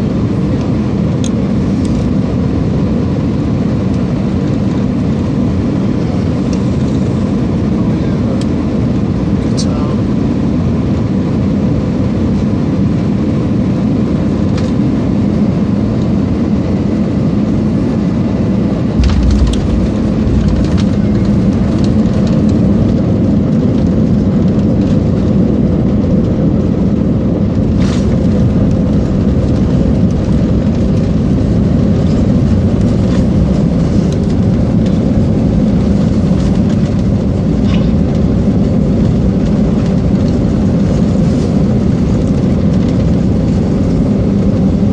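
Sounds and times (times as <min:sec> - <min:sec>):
aircraft cabin engine rumble: 0:00.0 - 0:44.9
rollout rumble: 0:18.9 - 0:25.0
wheels touching down thump: 0:19.0 - 0:22.3.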